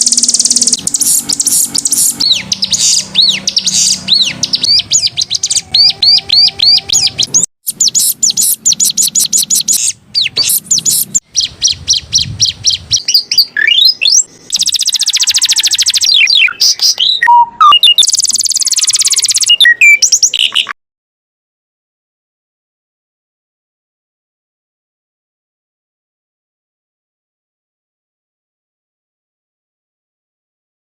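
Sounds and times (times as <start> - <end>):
canary singing: 0.0 - 20.8.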